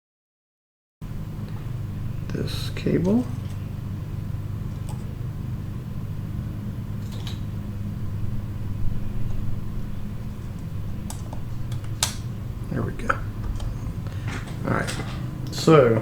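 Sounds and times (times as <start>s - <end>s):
steady low hum: 1.0s - 16.0s
small tools clicking and tapping: 7.0s - 7.5s, 10.5s - 12.3s.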